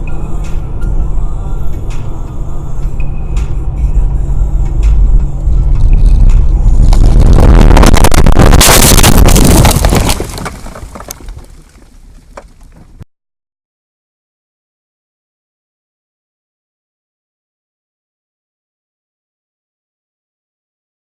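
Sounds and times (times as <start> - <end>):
car road noise rumble: 0.0 - 13.0
loud harsh crash with scraping: 5.9 - 13.0.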